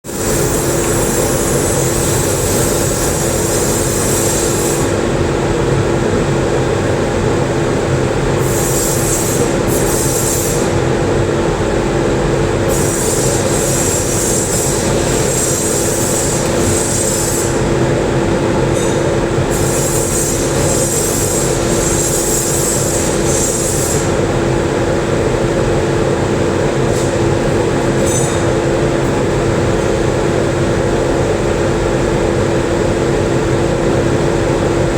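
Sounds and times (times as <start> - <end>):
welder buzzing hum: 0.1 - 5.2, 12.6 - 24.4.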